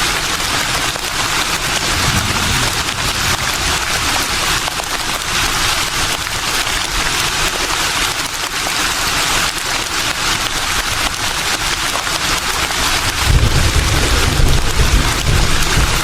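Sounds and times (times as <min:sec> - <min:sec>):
leaves rustling in breeze: 0:00.1 - 0:08.1
low rumble: 0:01.2 - 0:06.0.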